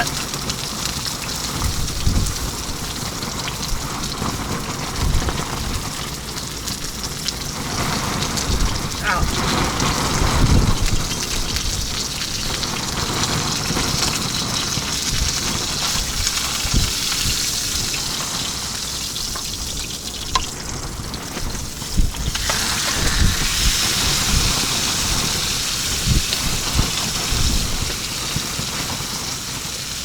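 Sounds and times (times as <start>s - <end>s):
fish sizzling in a pan: 0.0s - 9.2s, 9.8s - 30.0s
wind buffeting thumps: 1.6s - 2.8s, 7.8s - 12.0s, 14.8s - 18.3s, 20.4s - 29.2s.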